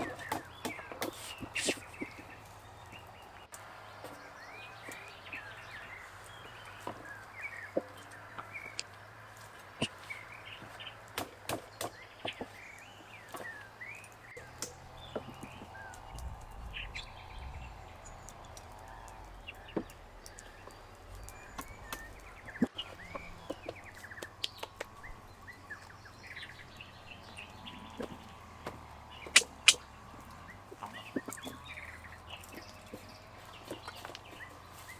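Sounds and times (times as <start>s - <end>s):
small birds chirping: 0.0s - 34.9s
sharp clicks and taps: 29.3s - 29.8s.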